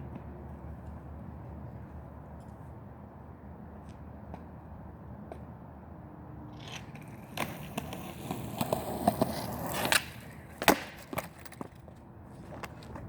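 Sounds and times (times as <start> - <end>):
skateboard wheels rolling on pavement: 3.6 - 13.0
skateboard striking the ground: 6.5 - 13.0.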